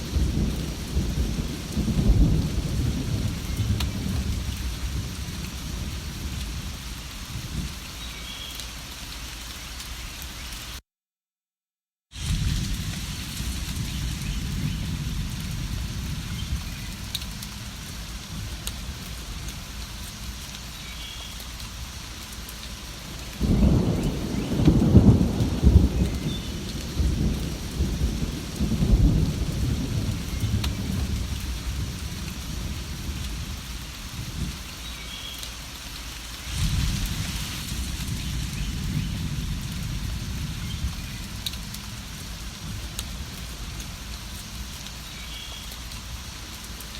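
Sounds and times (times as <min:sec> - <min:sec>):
rolling thunder: 0:00.0 - 0:07.8, 0:12.2 - 0:19.7, 0:23.3 - 0:34.6, 0:36.4 - 0:44.0
steady rain: 0:00.0 - 0:10.8, 0:12.1 - 0:46.9.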